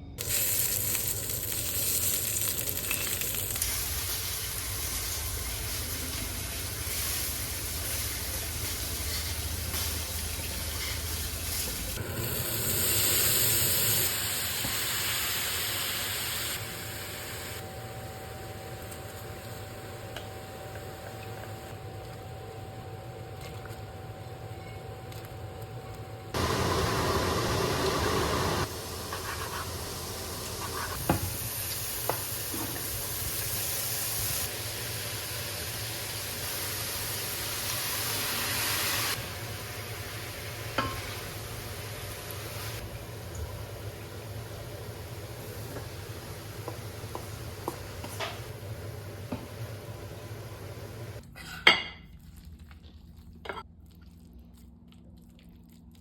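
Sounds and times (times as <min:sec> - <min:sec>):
food sizzling in a pan: 0:00.2 - 0:17.6, 0:26.4 - 0:51.2.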